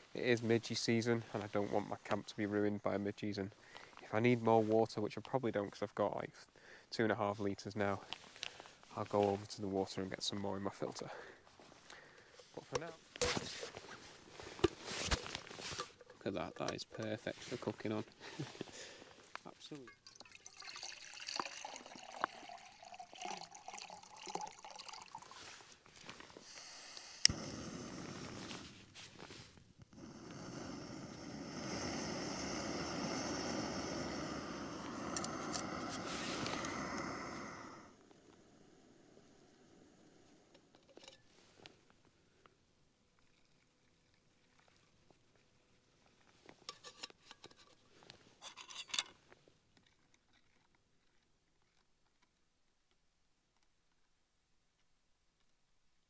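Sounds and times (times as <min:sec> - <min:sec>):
water trickling and dripping: 0:19.8 - 0:25.7.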